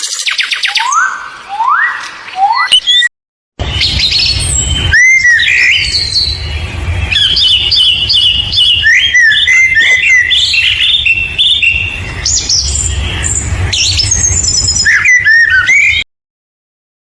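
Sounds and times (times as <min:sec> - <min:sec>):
songbird singing: 0:00.0 - 0:16.1
low rumble: 0:03.6 - 0:15.7.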